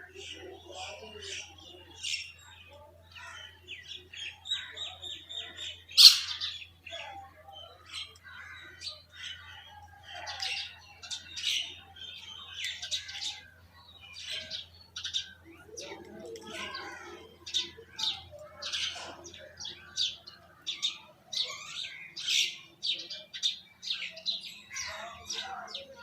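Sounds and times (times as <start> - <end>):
birds chirping: 0.0 - 26.0
harsh bird call: 6.0 - 6.6.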